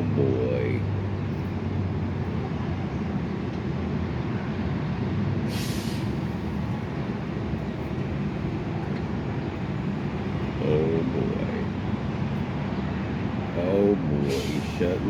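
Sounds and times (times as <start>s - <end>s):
brief hiss: 5.5s - 6.3s, 14.3s - 14.8s.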